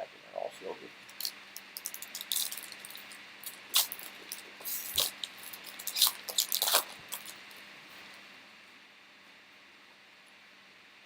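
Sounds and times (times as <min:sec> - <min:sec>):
trading cards rustling: 0:01.1 - 0:07.6.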